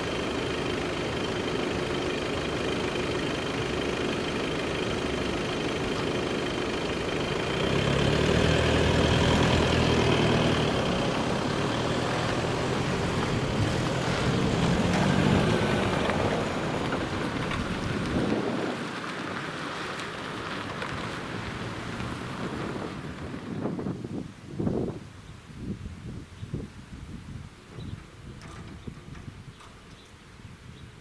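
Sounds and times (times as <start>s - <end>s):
heavy diesel engine droning: 0.0s - 24.0s.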